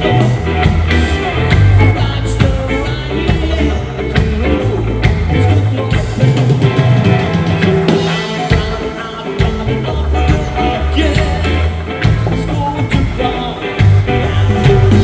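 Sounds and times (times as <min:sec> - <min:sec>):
bass line: 0:00.0 - 0:15.0
electric guitar: 0:00.0 - 0:15.0.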